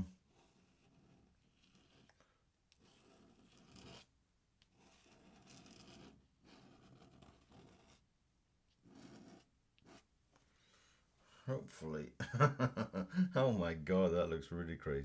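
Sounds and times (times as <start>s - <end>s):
pen scratching on paper: 0.0s - 8.1s, 8.7s - 10.1s.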